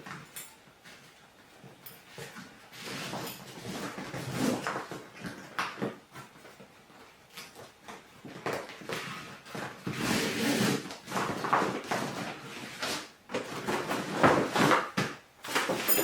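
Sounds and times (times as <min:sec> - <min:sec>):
bag straps rustling and scraping: 0:01.8 - 0:05.4, 0:08.8 - 0:14.8, 0:15.5 - 0:16.0.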